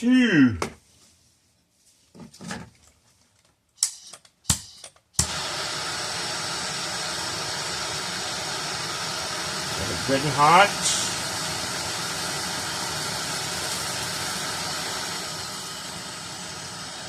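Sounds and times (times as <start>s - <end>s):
torch flame hissing: 5.2s - 17.0s.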